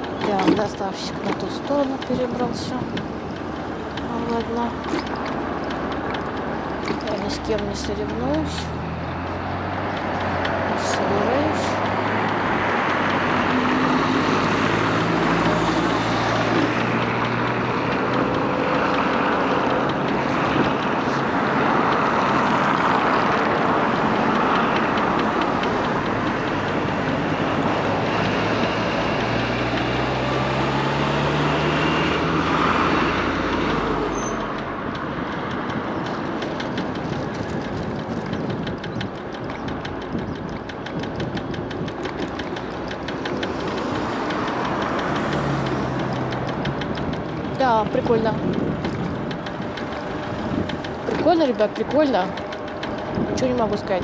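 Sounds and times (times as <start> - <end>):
fast even ticking: 0.0 - 54.0
passing vehicle engine: 0.0 - 54.0
road noise: 0.0 - 54.0
wind noise: 0.0 - 54.0.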